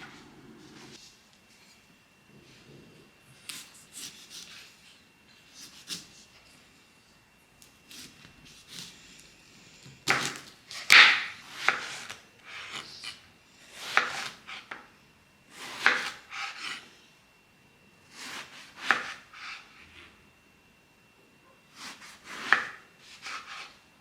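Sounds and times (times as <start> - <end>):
knife cutting on wooden board: 3.4 - 4.7, 5.6 - 6.2, 21.8 - 23.8.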